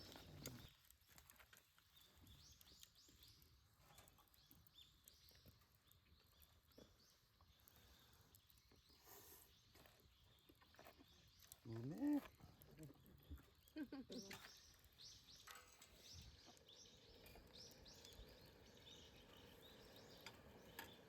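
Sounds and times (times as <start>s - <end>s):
faint small-bird chirps: 0.0s - 21.0s.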